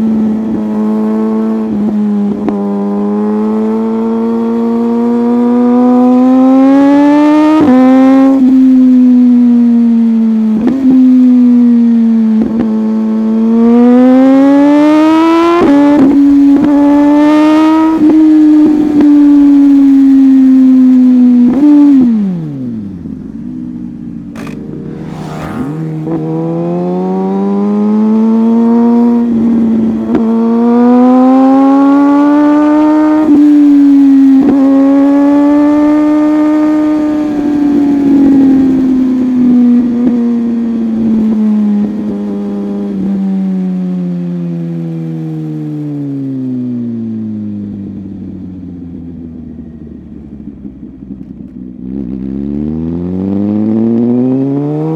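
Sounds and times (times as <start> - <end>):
motorcycle engine running: 15.4 - 43.2, 47.6 - 53.8.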